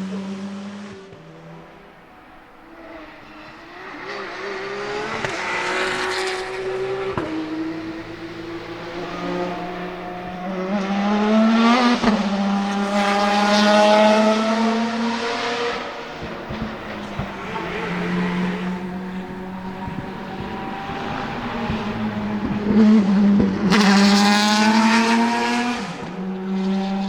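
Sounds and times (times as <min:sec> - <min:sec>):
racing car engine accelerating: 0:00.0 - 0:27.0.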